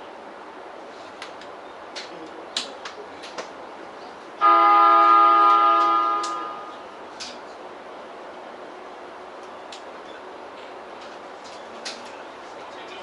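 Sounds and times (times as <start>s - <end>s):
train horn blast: 4.4s - 6.8s.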